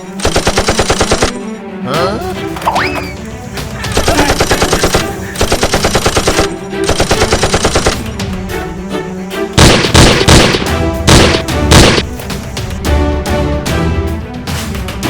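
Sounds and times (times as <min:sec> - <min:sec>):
background music: 0:00.0 - 0:15.0
machine-gun fire: 0:00.2 - 0:01.4, 0:03.9 - 0:08.0, 0:09.6 - 0:12.1
heavy gunshots: 0:03.9 - 0:08.1, 0:09.6 - 0:12.2.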